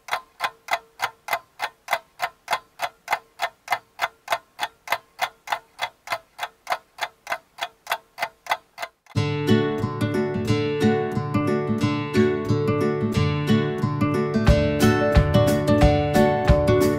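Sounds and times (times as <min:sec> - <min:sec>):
clock ticking: 0:00.0 - 0:09.2
strummed acoustic guitar music: 0:09.2 - 0:16.9.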